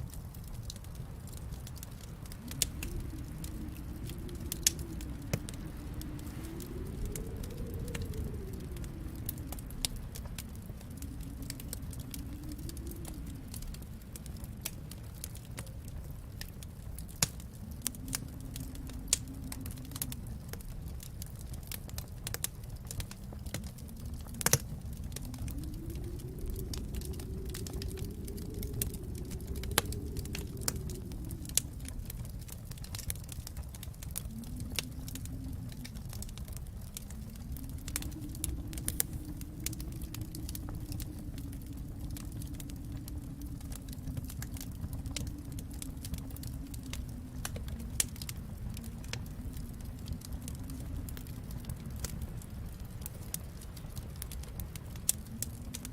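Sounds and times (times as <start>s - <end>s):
steady low rumble: 0.0s - 55.9s
wood fire crackling and popping: 0.0s - 55.9s.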